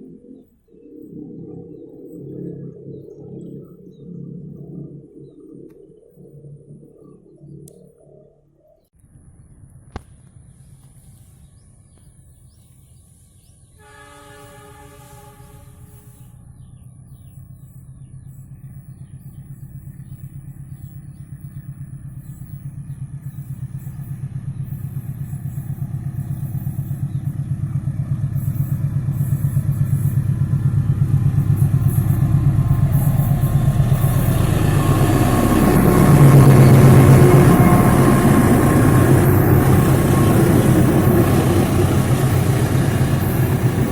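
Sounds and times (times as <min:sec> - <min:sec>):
locomotive engine and rail rumble: 0:00.0 - 0:43.9
locomotive horn blast: 0:13.8 - 0:16.5.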